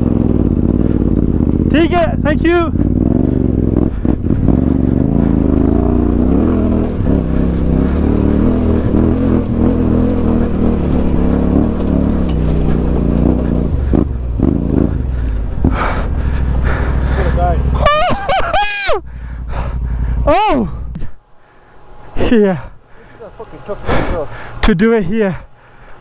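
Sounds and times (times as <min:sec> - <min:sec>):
motorcycle engine revving under load: 0:00.0 - 0:18.3, 0:19.1 - 0:21.0.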